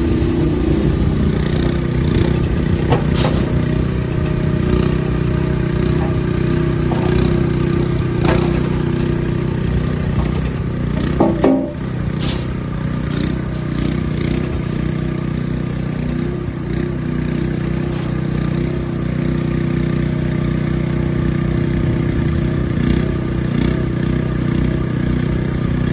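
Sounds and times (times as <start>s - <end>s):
loader engine running: 0.0s - 25.9s
short clanks: 2.1s - 12.7s, 17.8s - 18.6s.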